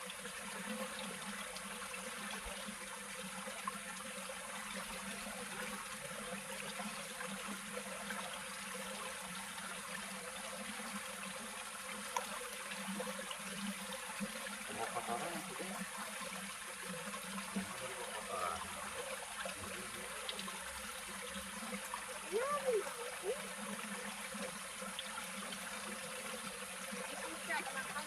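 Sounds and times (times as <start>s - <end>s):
flowing water rushing: 0.0s - 28.0s.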